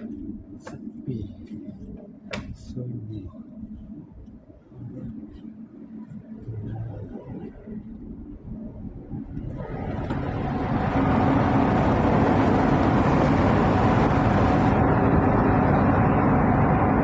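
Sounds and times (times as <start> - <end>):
faint hum: 0.0 - 17.0
ship machinery rumble and hiss: 9.6 - 17.0.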